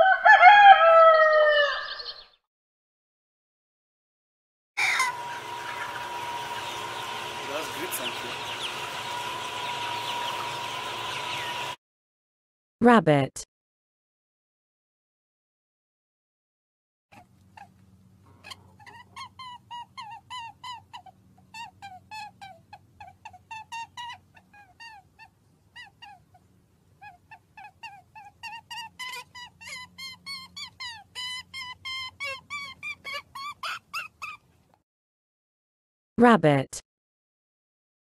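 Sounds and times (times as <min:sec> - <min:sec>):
rabbit squeaking: 0:04.8 - 0:10.6, 0:18.4 - 0:34.5.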